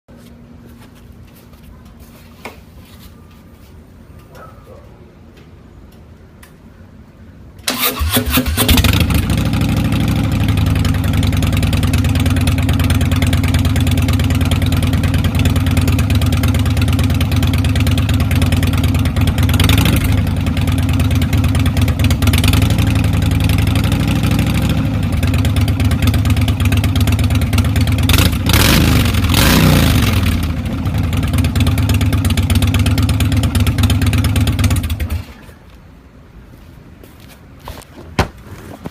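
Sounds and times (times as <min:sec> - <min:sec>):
motorcycle engine idling loudly: 0:08.7 - 0:35.2.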